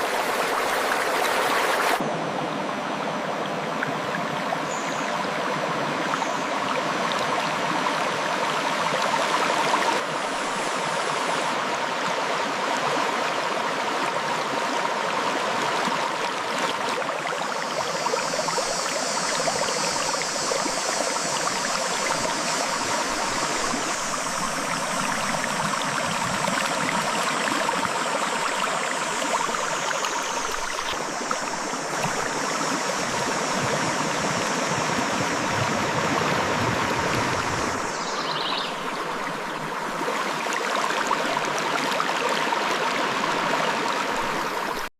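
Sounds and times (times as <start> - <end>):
river flowing over rocks: 0.0 - 2.0, 3.7 - 44.9
high hiss: 17.2 - 40.0.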